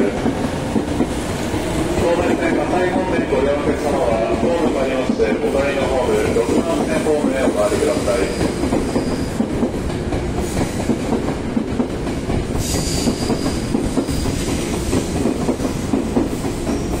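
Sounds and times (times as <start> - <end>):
train wheels clicking over rail joints: 0.0 - 2.6, 4.2 - 17.0
electric train rumble: 0.0 - 17.0.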